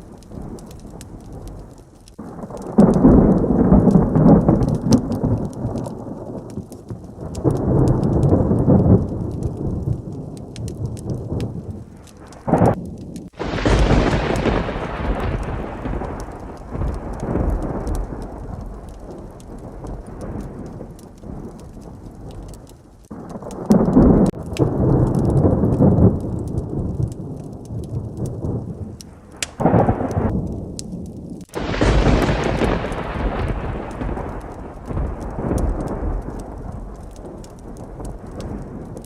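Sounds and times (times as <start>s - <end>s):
heavy rain: 0.0s - 39.0s
thunder rumbling: 0.0s - 39.0s
small sharp ticks: 29.0s - 31.6s.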